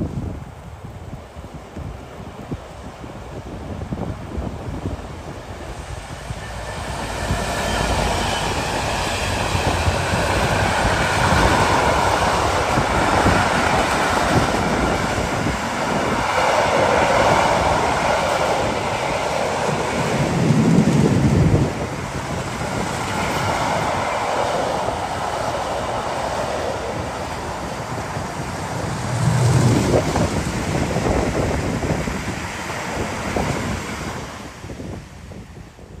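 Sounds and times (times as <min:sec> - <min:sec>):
wind on microphone: 0:00.0 - 0:36.0
train wheels rolling on rail: 0:00.2 - 0:36.0
low bumps: 0:27.8 - 0:32.0.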